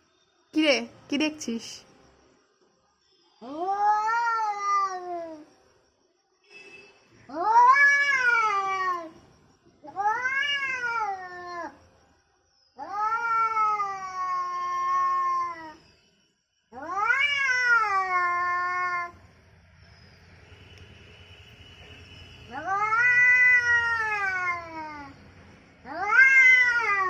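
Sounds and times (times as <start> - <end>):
angry cat yowling: 7.3 - 9.1, 9.9 - 11.8, 12.8 - 15.8, 16.8 - 19.2, 22.5 - 25.2, 25.9 - 27.0.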